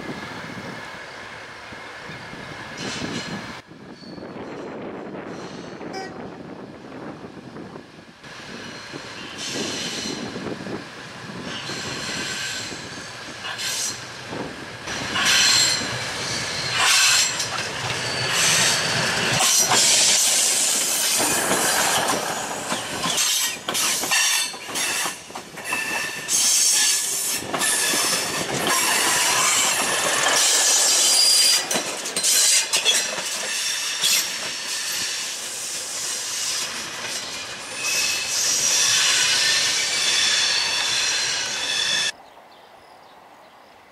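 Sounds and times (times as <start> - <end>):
train wheels squealing: 2.8 - 5.8, 8.5 - 10.5, 11.4 - 14.0, 14.9 - 42.2
wheels clattering over rail joints: 27.4 - 34.6.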